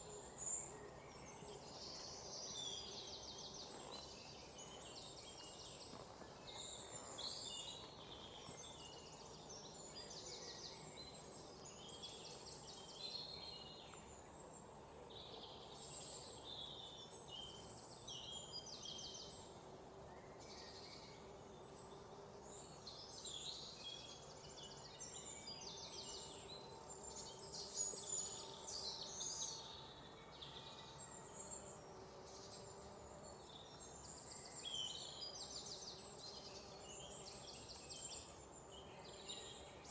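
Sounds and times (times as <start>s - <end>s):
faint background hiss: 0.0s - 39.9s
songbirds chirping and singing: 20.1s - 39.9s.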